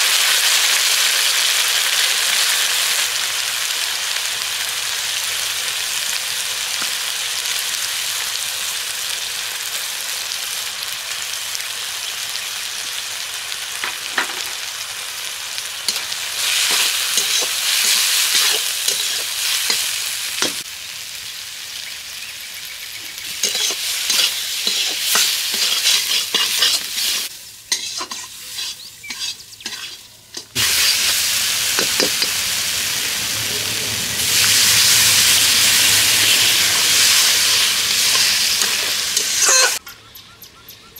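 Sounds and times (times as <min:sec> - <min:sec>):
spice paste sizzling in oil: 0:00.0 - 0:39.8
spatula scraping pan: 0:15.9 - 0:19.8, 0:23.3 - 0:31.2, 0:34.2 - 0:39.8.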